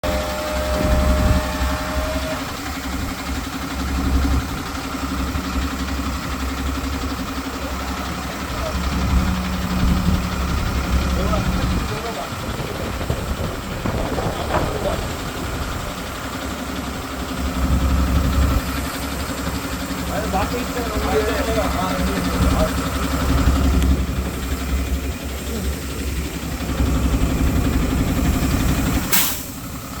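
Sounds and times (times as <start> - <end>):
diesel truck engine idling: 0.0 - 30.0
short air hiss: 29.0 - 29.9.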